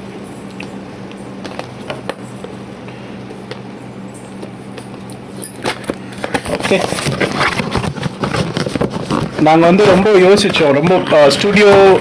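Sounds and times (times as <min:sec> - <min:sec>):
steady low hum: 0:00.0 - 0:12.0
packaging clicks and rustles: 0:04.8 - 0:12.0.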